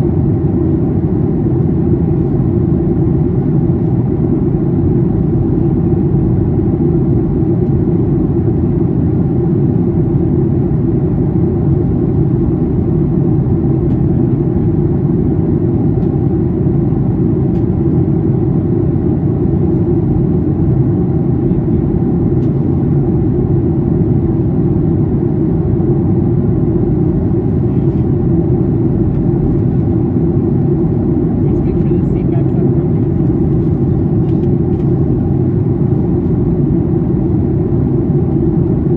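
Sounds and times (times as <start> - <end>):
airplane cabin engine drone: 0.0 - 38.9.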